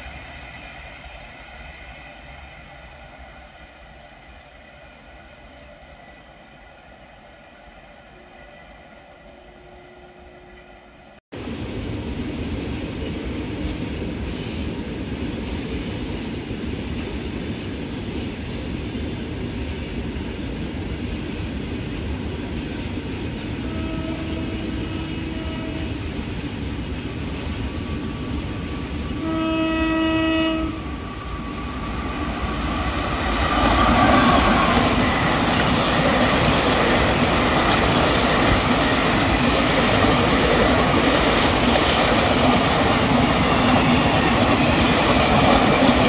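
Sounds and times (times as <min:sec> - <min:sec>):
approaching train rush: 0:00.0 - 0:46.0
train rumble: 0:00.0 - 0:46.0
locomotive horn blasts: 0:23.6 - 0:26.0, 0:29.2 - 0:30.9.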